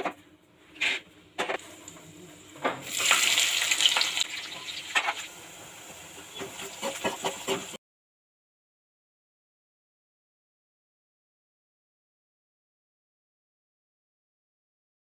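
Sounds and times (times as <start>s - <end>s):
hissing sizzle in pan: 1.6s - 7.8s.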